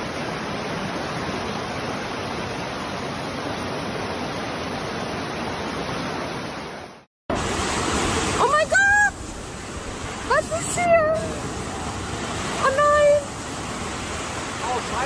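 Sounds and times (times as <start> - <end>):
fast-flowing floodwater rushing: 0.0 - 15.0.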